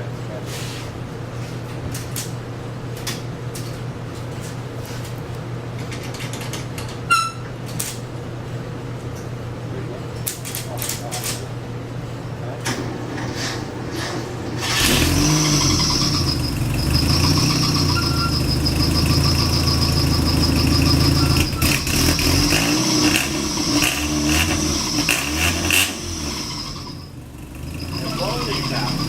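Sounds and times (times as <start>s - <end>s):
high steady whine: 12.3s - 29.0s
car engine revving: 14.0s - 29.0s.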